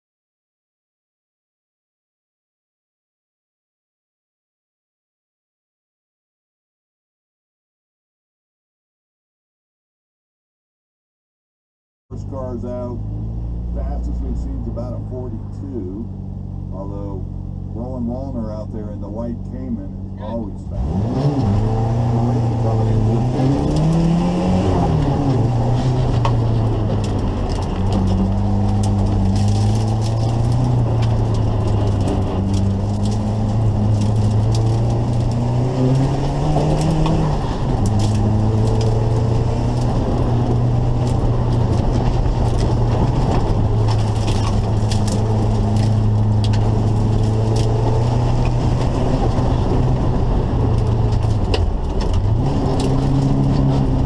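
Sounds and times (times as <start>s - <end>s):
turbocharged car engine: 12.1s - 54.0s
scattered clicks and crackle: 23.6s - 24.2s, 25.5s - 54.0s.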